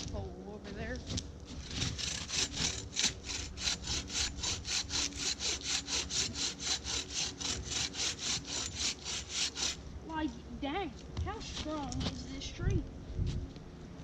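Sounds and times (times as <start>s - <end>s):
bow saw cutting tree trunk: 1.5s - 9.9s.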